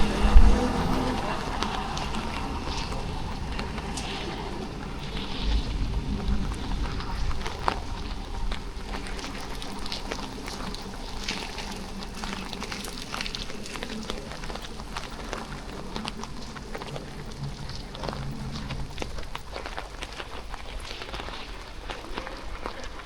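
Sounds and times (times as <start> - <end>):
low hum: 0.0 - 10.8
rain falling with drop ticks: 0.0 - 23.0.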